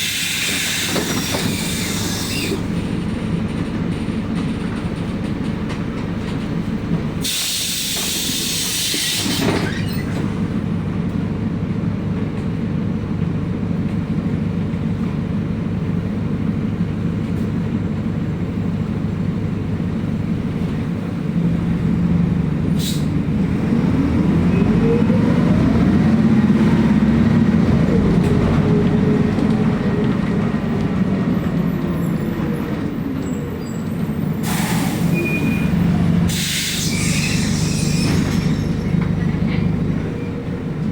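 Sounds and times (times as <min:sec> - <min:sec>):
air brake hiss: 0:00.0 - 0:02.6, 0:07.2 - 0:10.1, 0:22.8 - 0:23.2, 0:34.4 - 0:35.7, 0:36.3 - 0:38.8
bus diesel engine running: 0:00.0 - 0:40.9
road noise rumble: 0:00.0 - 0:40.9.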